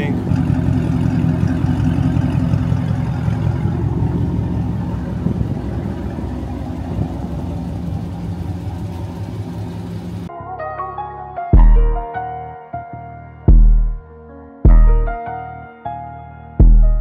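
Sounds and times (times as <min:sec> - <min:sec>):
car engine idling with deep rumble: 0:00.0 - 0:10.3.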